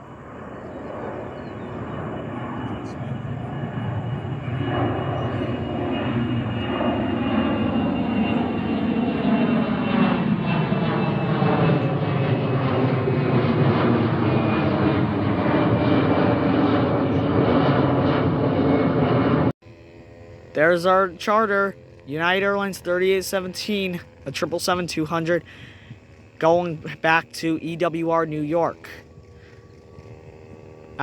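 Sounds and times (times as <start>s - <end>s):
jet engines at takeoff: 0.0s - 31.0s.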